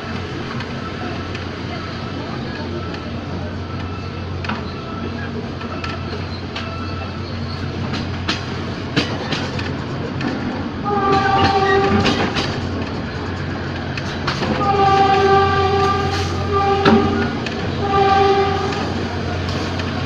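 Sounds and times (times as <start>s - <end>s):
train wheels clicking on rails: 0.0s - 20.0s
train horn blasts: 10.8s - 12.3s, 14.5s - 19.0s.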